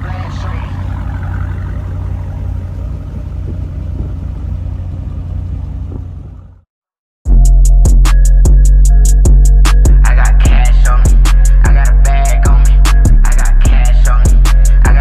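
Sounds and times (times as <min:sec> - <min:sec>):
car engine rumbling: 0:00.0 - 0:06.7, 0:07.3 - 0:15.0
loud hip hop music: 0:07.3 - 0:15.0.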